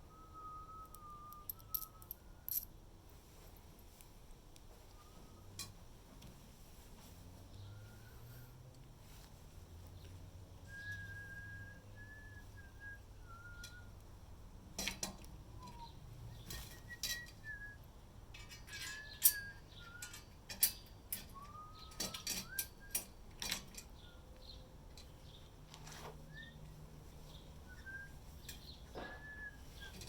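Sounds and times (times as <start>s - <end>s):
person whistling: 0.0s - 2.5s, 10.7s - 14.0s, 16.8s - 17.8s, 21.4s - 23.0s, 29.0s - 29.9s
clicks of hardware parts: 18.3s - 23.9s.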